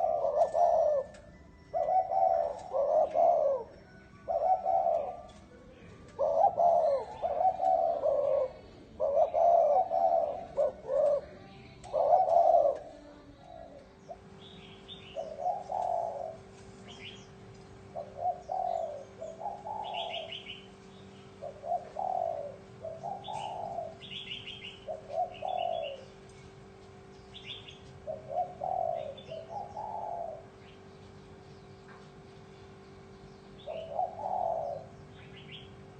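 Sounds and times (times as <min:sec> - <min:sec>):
dove cooing: 0:00.0 - 0:31.5, 0:32.7 - 0:35.9.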